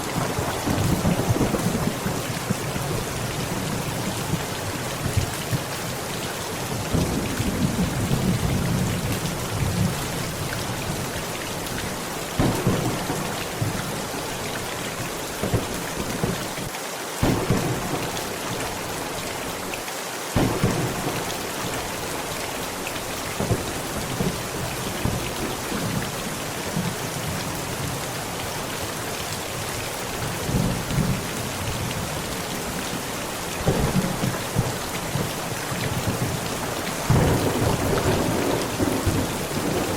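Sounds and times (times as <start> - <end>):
thunder rolling: 0.0 - 3.1, 12.4 - 13.8, 17.2 - 18.2, 37.0 - 39.9
heavy rain on a tent: 0.0 - 39.9.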